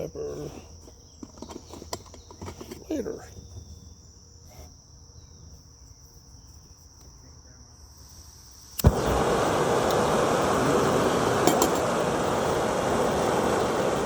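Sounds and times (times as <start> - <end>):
stove burner hissing: 0.0 - 3.6, 7.8 - 14.0
faint cricket-like chirring: 0.0 - 14.0
camp stove lighting click: 8.7 - 14.0.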